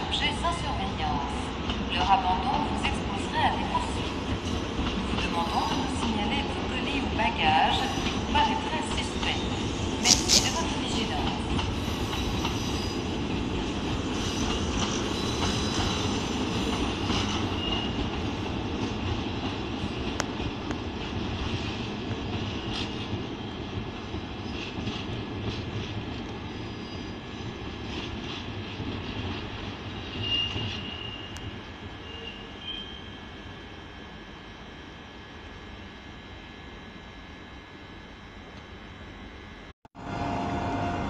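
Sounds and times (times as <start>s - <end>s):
train wheels and traction rumble: 0.0s - 41.0s
high-pitched squeal: 10.0s - 10.7s.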